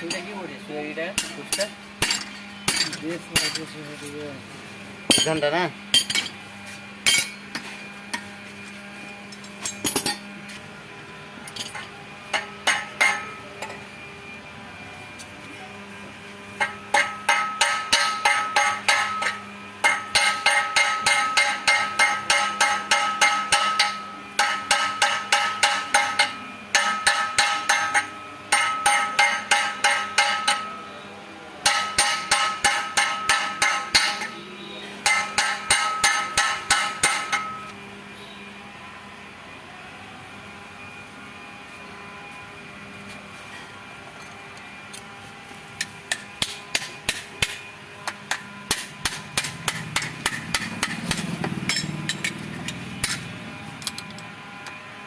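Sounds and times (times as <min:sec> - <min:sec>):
hammer striking metal: 0:01.2 - 0:03.7, 0:05.1 - 0:06.4, 0:07.0 - 0:08.2, 0:11.5 - 0:13.8, 0:16.6 - 0:30.8, 0:31.6 - 0:34.4, 0:35.0 - 0:37.7, 0:45.8 - 0:52.4.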